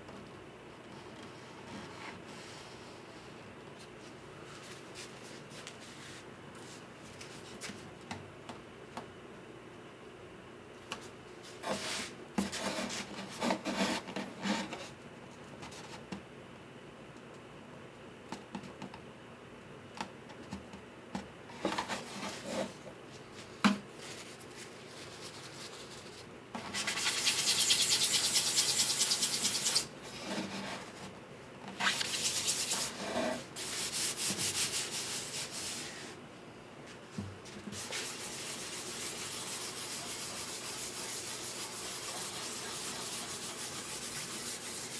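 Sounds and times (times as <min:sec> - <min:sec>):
sandpaper sanding wood: 0:26.8 - 0:29.9, 0:31.8 - 0:33.0, 0:33.6 - 0:36.0, 0:37.8 - 0:44.9.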